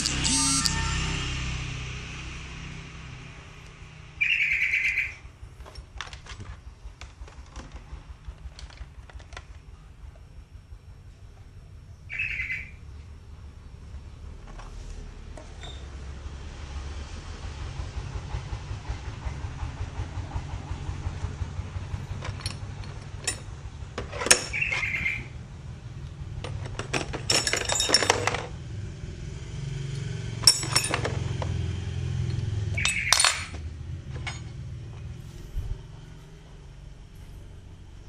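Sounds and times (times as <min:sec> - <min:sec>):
metal tools clinking: 0:27.0 - 0:28.4, 0:30.4 - 0:31.2, 0:32.8 - 0:33.6
steady low rumble: 0:34.9 - 0:38.0.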